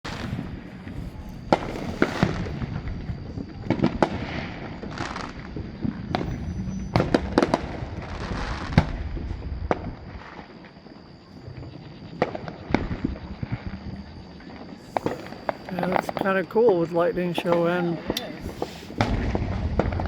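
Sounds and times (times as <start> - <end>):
fireworks bangs: 0.0 - 20.0
crackling hiss of bursting shells: 1.5 - 2.5, 14.8 - 16.4, 17.4 - 20.0.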